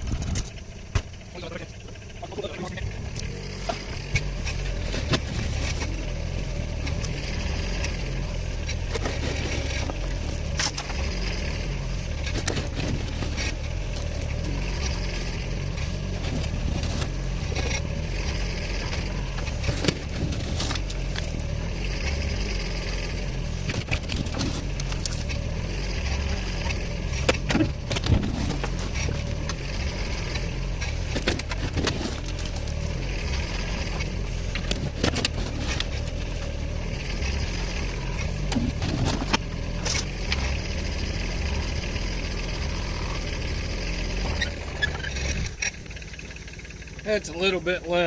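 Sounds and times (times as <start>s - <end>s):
sharp knocks and rattles: 0.0s - 1.3s, 23.1s - 36.6s
engine running under load: 0.0s - 48.0s.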